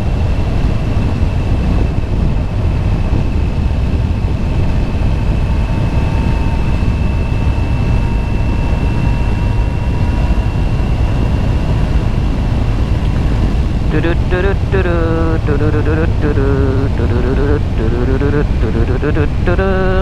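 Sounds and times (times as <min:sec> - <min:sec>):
wind rushing on microphone: 0:00.0 - 0:07.0
motorcycle engine drone: 0:12.4 - 0:20.0
faint low whine: 0:13.1 - 0:20.0.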